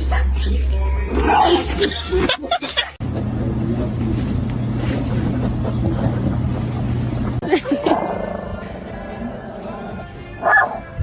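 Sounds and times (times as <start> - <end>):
vehicle hum with road noise: 3.0 - 7.6.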